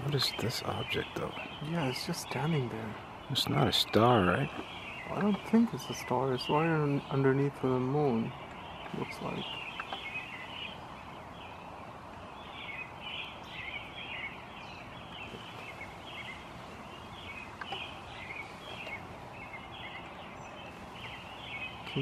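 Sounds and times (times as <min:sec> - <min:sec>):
birds chirping and singing: 0:00.0 - 0:22.0
faint background hiss: 0:00.0 - 0:22.0.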